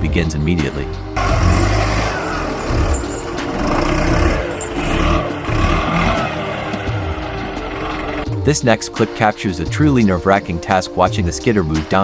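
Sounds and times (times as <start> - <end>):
diesel engine straining: 1.1 - 8.4.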